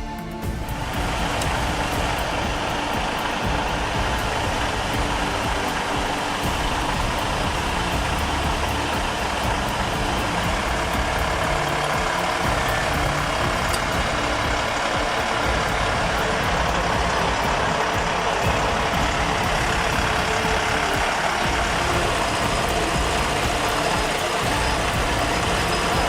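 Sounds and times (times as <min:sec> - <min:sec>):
road noise: 0:00.0 - 0:26.0
truck engine running: 0:00.0 - 0:26.0.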